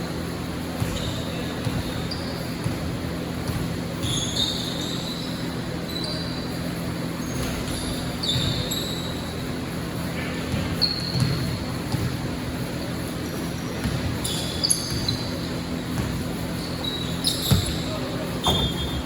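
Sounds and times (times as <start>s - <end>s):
gym background noise: 0.0s - 19.0s
sneakers squeaking on floor: 0.0s - 19.0s
basketball bouncing: 10.4s - 12.7s, 13.4s - 16.6s, 17.3s - 19.0s.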